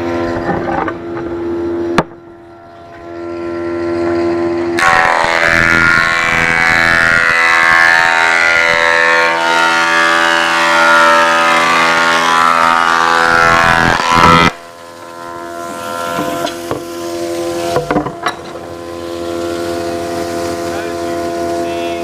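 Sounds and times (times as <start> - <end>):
planer idling hum: 0.0 - 22.0
planer cutting wood: 4.8 - 22.0.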